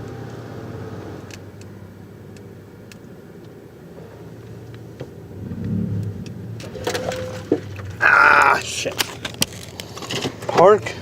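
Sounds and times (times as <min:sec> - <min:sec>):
car engine idling: 0:01.5 - 0:10.0.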